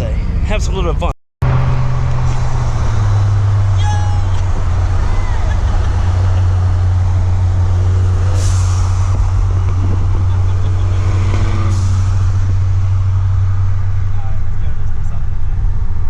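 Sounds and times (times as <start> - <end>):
car engine and road noise: 0.0 - 16.0
brief hissing: 8.2 - 9.1.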